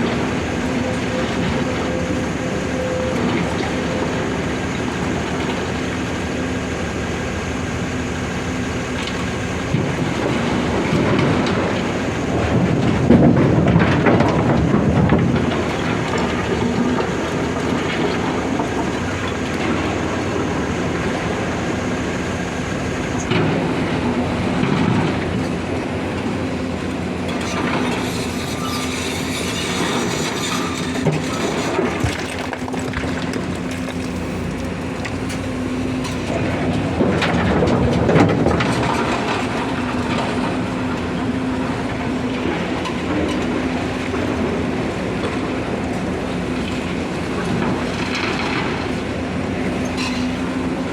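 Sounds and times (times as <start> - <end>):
excavator diesel engine running: 0.0 - 50.9
boulders clattering into truck body: 29.6 - 35.4, 36.2 - 45.8.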